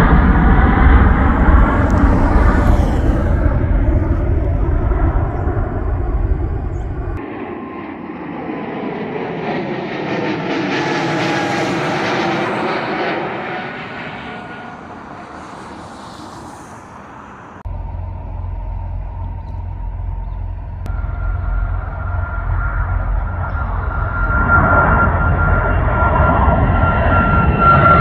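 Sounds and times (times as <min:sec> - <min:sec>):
low rumble: 0:00.0 - 0:07.2, 0:17.6 - 0:27.4
jet airliner engine roar: 0:00.0 - 0:28.0.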